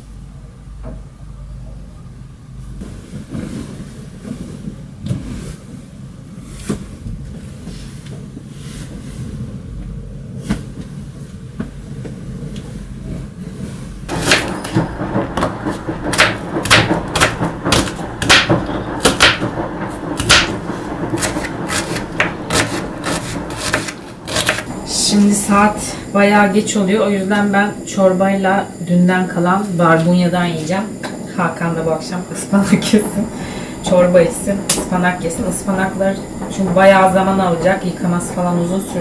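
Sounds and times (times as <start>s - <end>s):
steady low hum: 9.7s - 39.0s
sharp knocks and clatter: 14.1s - 25.0s.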